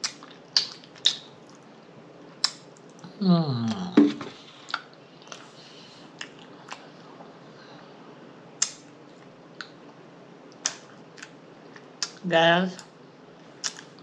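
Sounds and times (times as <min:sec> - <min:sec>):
wet lip smacks: 0:00.0 - 0:01.3, 0:13.6 - 0:13.9
person chewing: 0:02.4 - 0:07.3, 0:10.6 - 0:12.2, 0:13.6 - 0:14.0.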